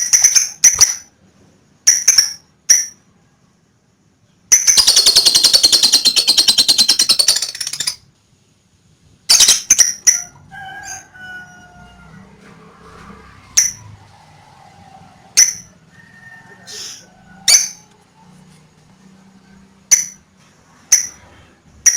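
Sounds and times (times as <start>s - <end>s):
bird shrill chirps: 4.6s - 8.0s.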